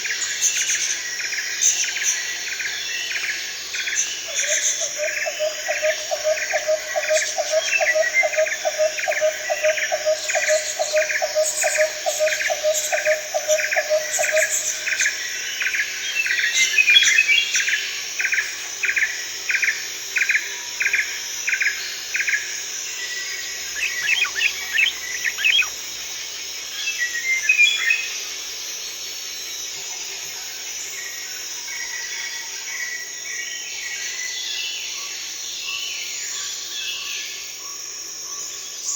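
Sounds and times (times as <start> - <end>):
insects droning: 0.0 - 38.9
lower-pitched bird call: 23.7 - 25.8.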